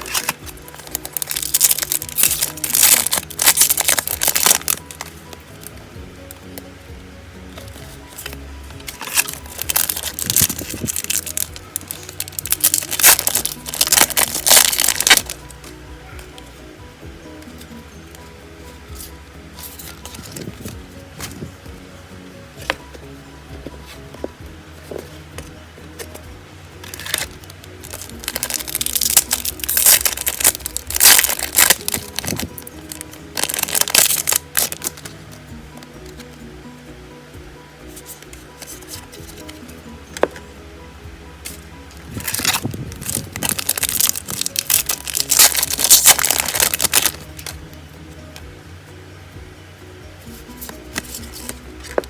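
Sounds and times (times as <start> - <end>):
foil wrapper crinkling and tearing: 0.0 - 5.1, 8.2 - 15.5, 26.8 - 35.1, 42.1 - 47.6
background music: 0.0 - 52.0.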